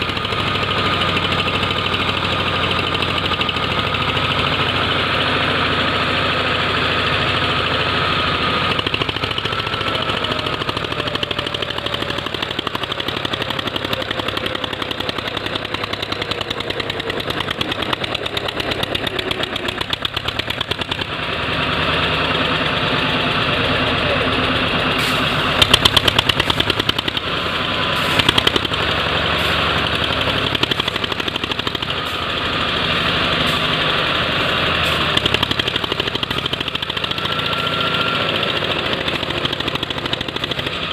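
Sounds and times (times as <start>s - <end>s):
tractor diesel engine thudding: 0.0s - 40.9s
sharp clattering bursts: 25.0s - 27.4s.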